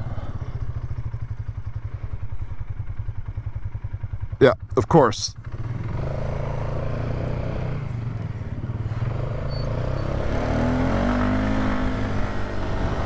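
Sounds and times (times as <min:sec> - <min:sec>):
quad engine running: 0:00.0 - 0:13.0.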